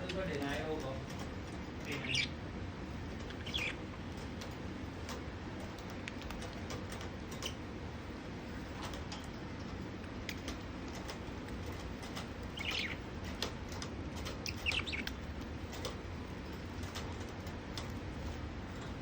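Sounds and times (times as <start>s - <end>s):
budgerigars chirping: 1.8s - 2.4s, 3.2s - 3.9s, 12.1s - 13.6s, 14.2s - 15.3s.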